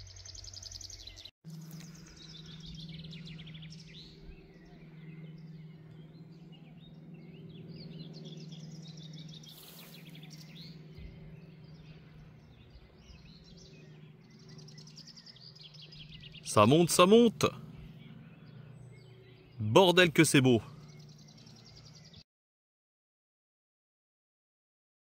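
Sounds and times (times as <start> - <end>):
birds singing and chirping: 0.0 - 22.2
steady low hum: 0.0 - 22.2.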